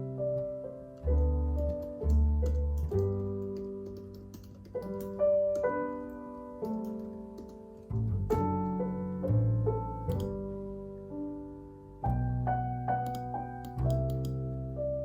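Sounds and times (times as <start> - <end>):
slow solo piano music: 0.0 - 15.0
computer keyboard typing: 1.7 - 5.2, 13.0 - 14.4.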